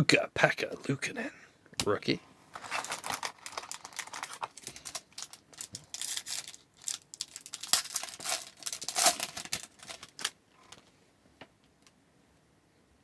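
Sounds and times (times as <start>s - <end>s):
foil wrapper tearing and crinkling: 2.6s - 10.4s.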